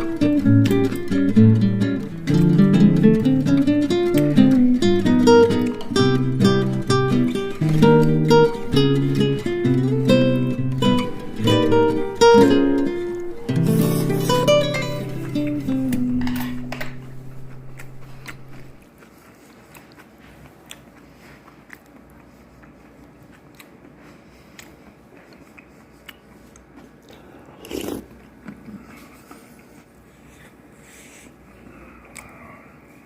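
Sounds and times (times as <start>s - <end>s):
acoustic guitar music: 0.0s - 18.8s
person eating close to microphone: 13.6s - 33.0s.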